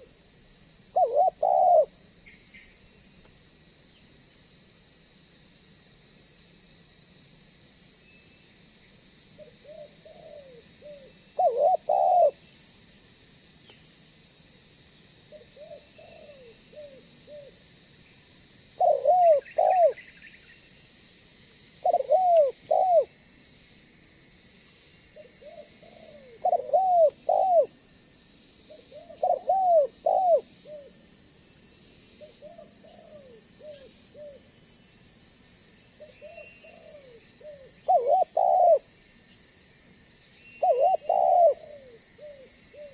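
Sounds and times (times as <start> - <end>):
faint high hiss: 0.0 - 42.9
dove cooing: 0.9 - 2.0, 9.4 - 12.4, 15.3 - 17.6, 18.8 - 20.1, 21.8 - 23.1, 25.2 - 27.7, 28.7 - 30.9, 32.2 - 34.5, 36.0 - 38.9, 40.6 - 42.9.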